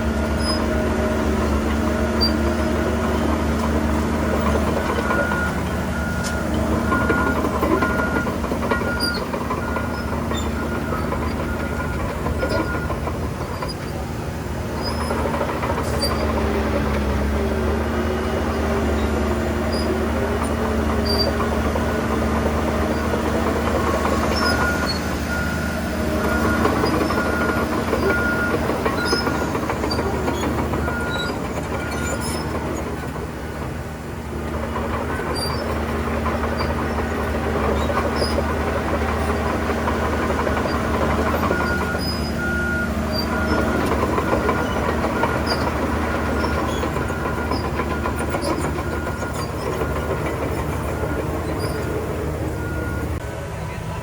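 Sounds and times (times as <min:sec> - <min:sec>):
bulldozer diesel engine: 0:00.0 - 0:54.0
metallic track clanking: 0:00.0 - 0:54.0
reversing alarm beeping: 0:01.8 - 0:13.2, 0:20.9 - 0:32.7, 0:37.5 - 0:53.2.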